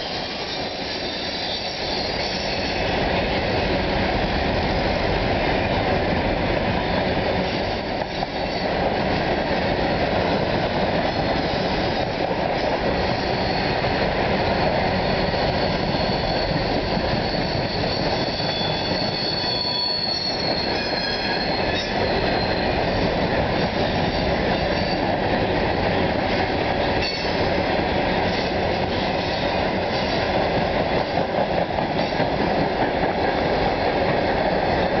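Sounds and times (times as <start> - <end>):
high wheel squeal: 0.0 - 2.9, 15.0 - 23.0
train wheels rumbling on rail: 0.0 - 35.0.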